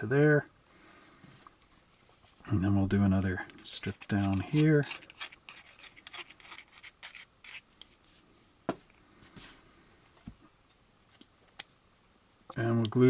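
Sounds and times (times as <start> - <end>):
plastic parts scratching and rubbing: 1.4 - 8.2.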